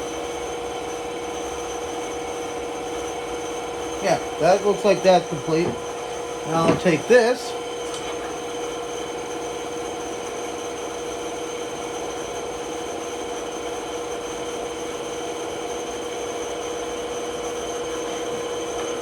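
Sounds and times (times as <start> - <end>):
bandsaw humming: 3.8 - 8.2.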